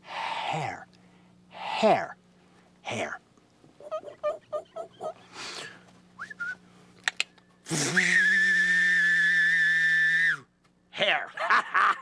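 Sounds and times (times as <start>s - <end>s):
rising chirp: 3.8s - 5.3s
long steady whistle: 6.2s - 6.7s, 7.7s - 10.5s.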